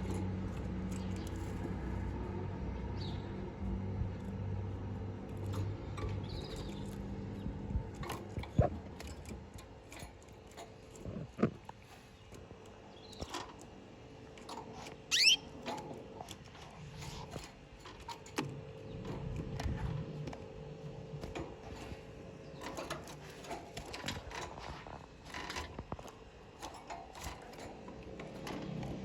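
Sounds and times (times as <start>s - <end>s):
canaries clicking and tapping: 0.0s - 3.4s, 4.2s - 29.0s
canary chirp: 15.1s - 15.6s.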